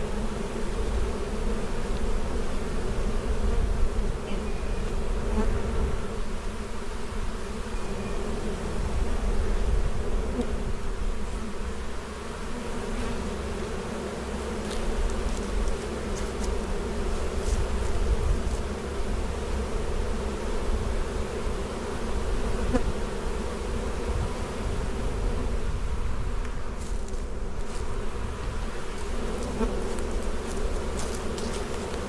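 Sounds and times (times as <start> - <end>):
honeybee colony buzzing: 0.0 - 32.0.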